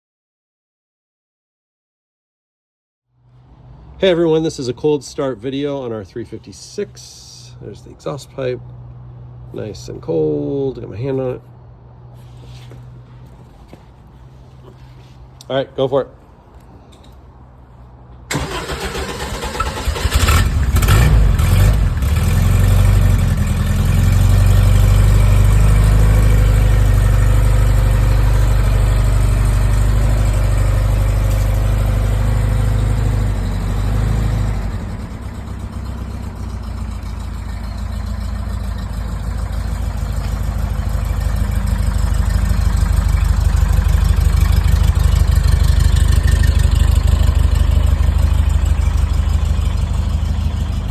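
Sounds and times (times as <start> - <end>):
car engine idling: 16.2 - 50.9
engine starter cranking: 18.3 - 23.5.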